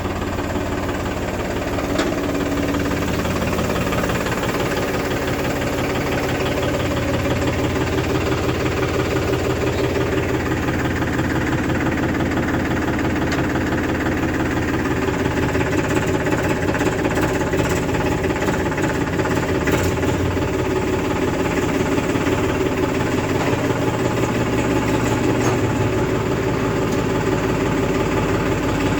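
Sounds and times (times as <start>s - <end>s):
heavy diesel engine running: 0.0s - 28.9s.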